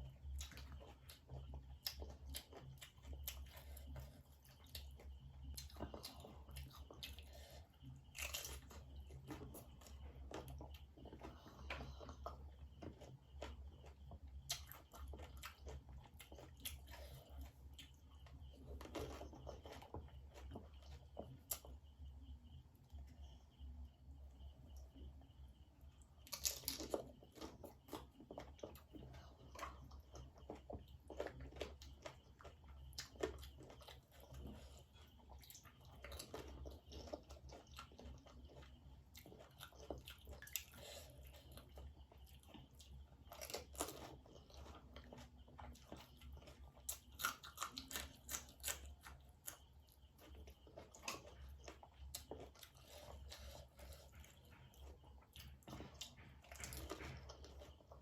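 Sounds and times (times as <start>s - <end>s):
low steady hum: 0.0s - 58.0s
crisp food crunching: 8.1s - 17.2s, 26.2s - 58.0s
wet chewing: 26.2s - 58.0s.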